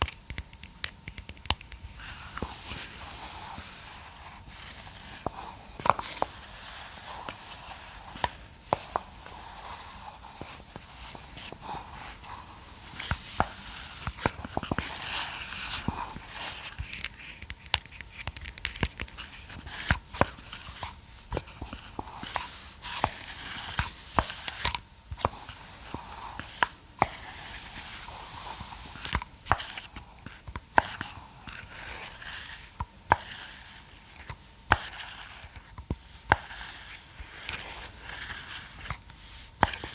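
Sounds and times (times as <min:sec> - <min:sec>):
scratchy rustling: 0:01.9 - 0:17.4.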